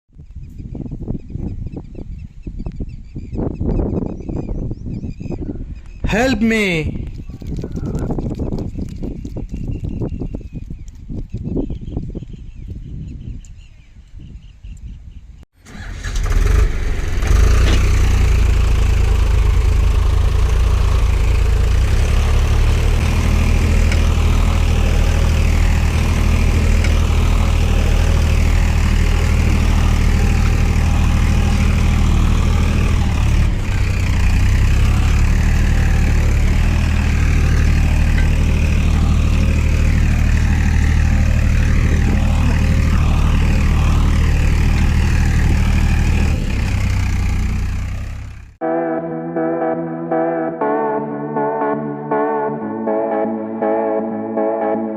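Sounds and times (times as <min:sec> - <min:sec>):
tractor engine running: 0:15.6 - 0:48.6.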